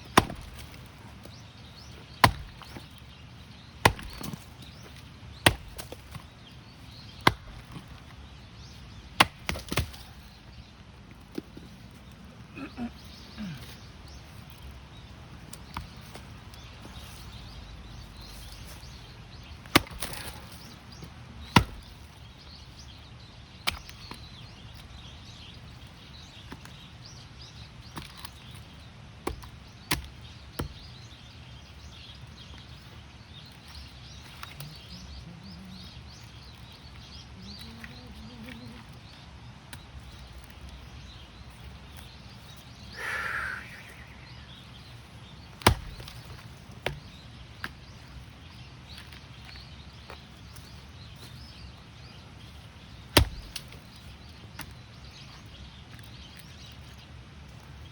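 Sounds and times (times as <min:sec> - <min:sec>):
axe striking firewood: 0:00.0 - 0:03.0, 0:03.8 - 0:10.4, 0:15.5 - 0:22.2, 0:23.6 - 0:24.3, 0:29.2 - 0:31.0, 0:45.4 - 0:48.0, 0:53.0 - 0:54.8.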